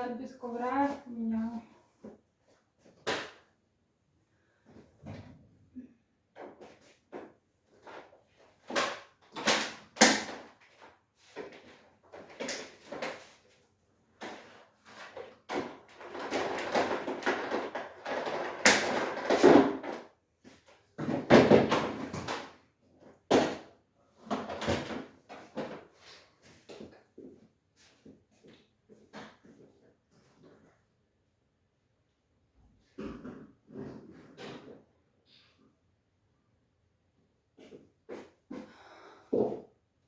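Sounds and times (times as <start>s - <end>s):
objects knocking and clattering: 14.2s - 27.4s.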